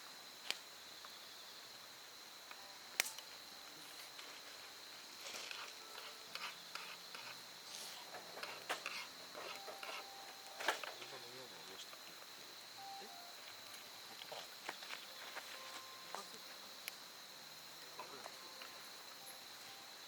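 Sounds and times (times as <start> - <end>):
high insect trill: 0.0 - 20.0
wood fire crackling and popping: 5.1 - 11.2.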